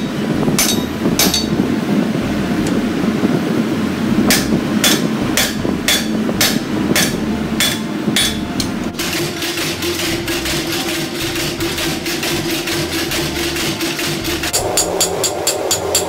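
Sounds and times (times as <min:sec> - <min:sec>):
hammer striking steel on anvil: 0:00.0 - 0:01.6, 0:04.3 - 0:08.9, 0:14.5 - 0:16.0
low rumble: 0:00.0 - 0:16.0.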